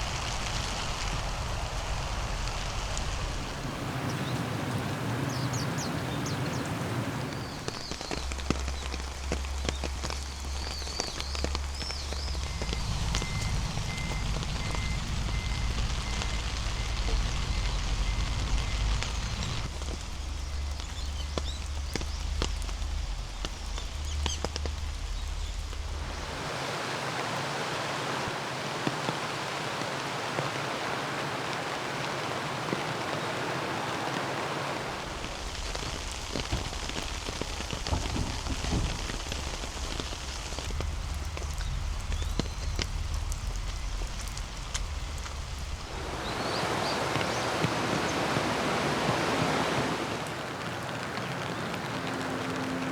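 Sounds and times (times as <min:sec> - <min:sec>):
heavy rain falling: 0:00.0 - 0:52.9
raindrops ticking sharply: 0:00.0 - 0:52.9
low rumble: 0:11.2 - 0:26.3.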